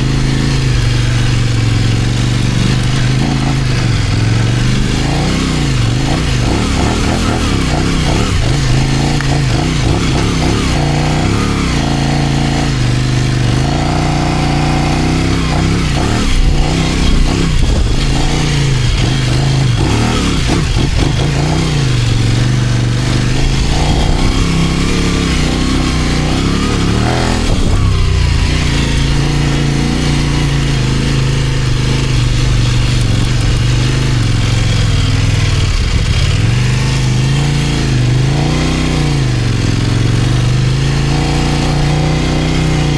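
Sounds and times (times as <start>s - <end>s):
motorcycle engine running: 0.0s - 42.9s
wind rushing: 15.5s - 30.7s.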